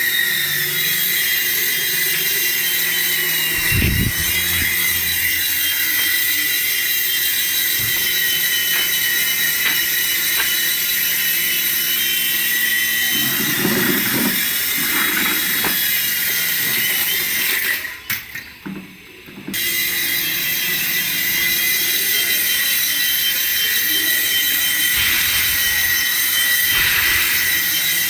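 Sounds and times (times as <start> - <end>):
toy motor whining: 0.0 - 18.7, 19.5 - 28.0
low rumbling: 3.6 - 5.4.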